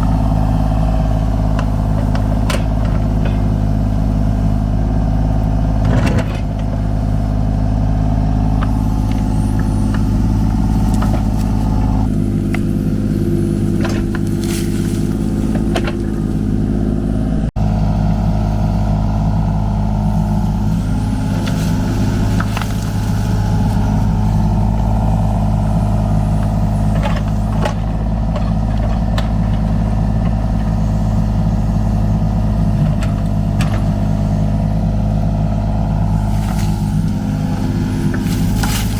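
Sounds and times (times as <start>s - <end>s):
metal clanks: 0.0s - 4.2s, 21.4s - 34.4s
diesel engine running under load: 0.0s - 38.9s.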